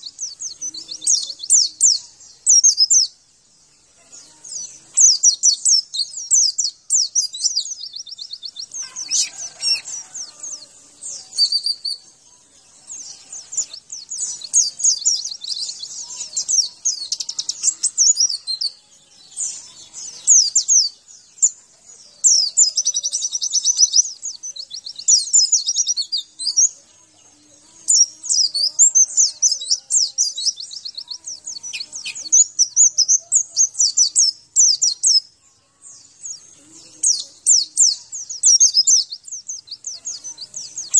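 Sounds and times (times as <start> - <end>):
bird twittering with rapid trills: 0.0 - 35.3, 35.9 - 40.9.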